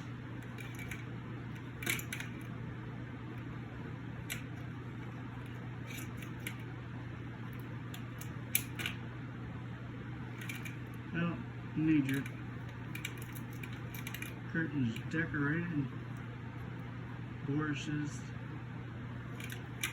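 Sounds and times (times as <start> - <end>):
low room hum: 0.0 - 19.9.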